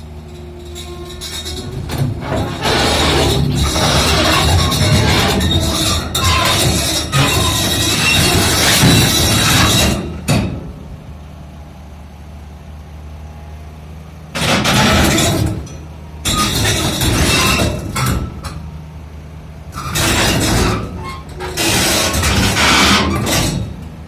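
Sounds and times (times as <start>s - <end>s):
clanking and grinding: 0.0s - 11.0s, 14.4s - 18.8s, 19.7s - 24.0s
excavator diesel engine running: 0.0s - 24.0s.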